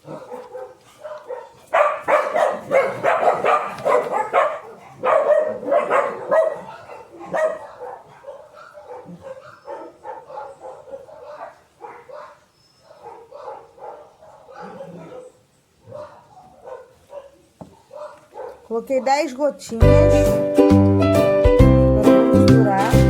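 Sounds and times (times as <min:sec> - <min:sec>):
dog barking: 0:00.0 - 0:19.2.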